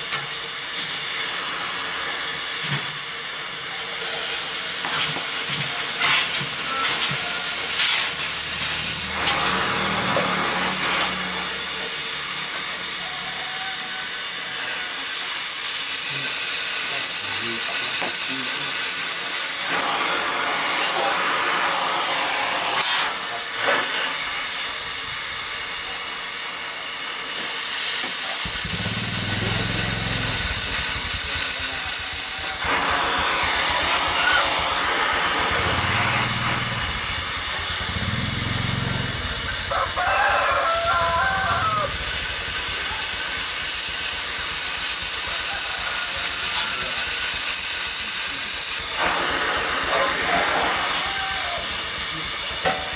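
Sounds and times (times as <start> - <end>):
cutting torch hissing: 0.0 - 52.9.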